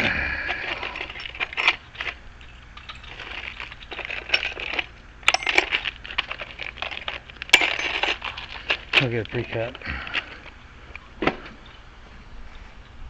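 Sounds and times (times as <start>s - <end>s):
metal keys clinking: 0.6s - 9.8s.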